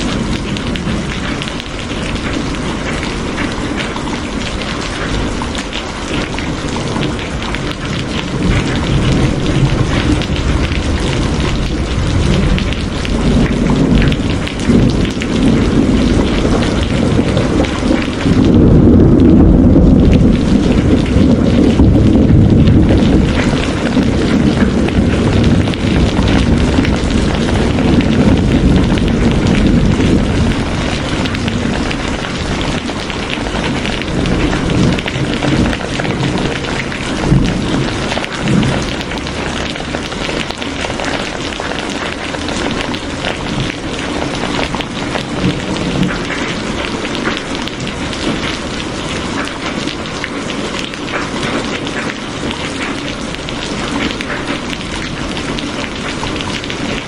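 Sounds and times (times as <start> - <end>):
rain falling in dense patter: 0.0 - 57.0
low rumble: 8.6 - 39.8.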